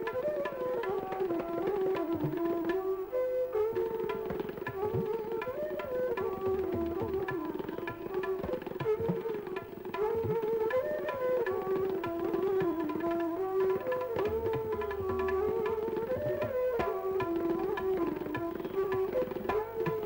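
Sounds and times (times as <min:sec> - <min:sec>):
tabla drumming: 0:00.0 - 0:20.0.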